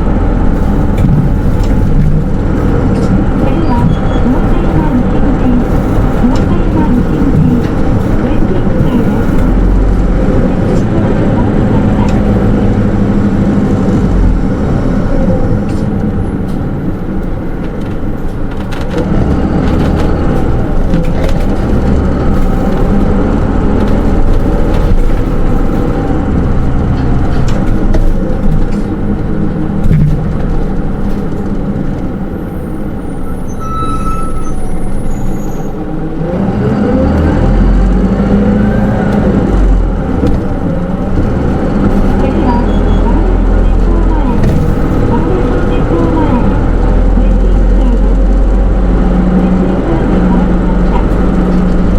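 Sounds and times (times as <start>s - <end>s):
bus diesel engine: 0.0s - 51.9s
road noise: 0.0s - 51.9s
brief high tone: 32.5s - 35.7s.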